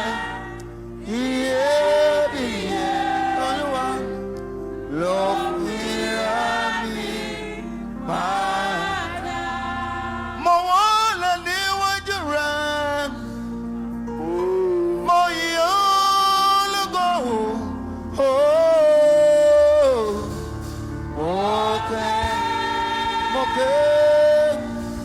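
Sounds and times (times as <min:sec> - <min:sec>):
person singing gospel: 0:00.0 - 0:25.0.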